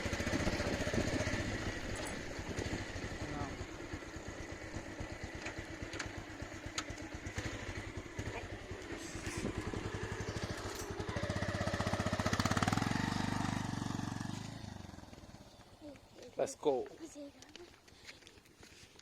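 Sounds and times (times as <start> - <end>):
motorcycle engine running: 0.0 - 17.7.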